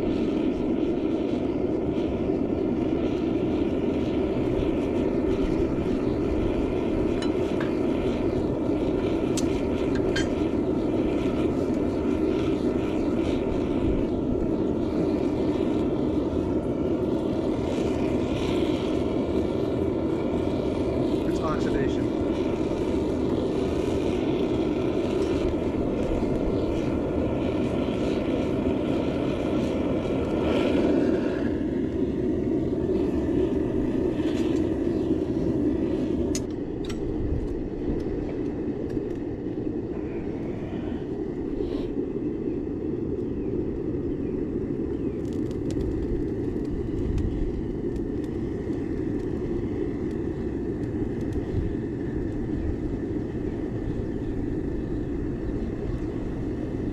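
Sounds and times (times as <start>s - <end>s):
furnace burner roaring: 0.0s - 56.9s.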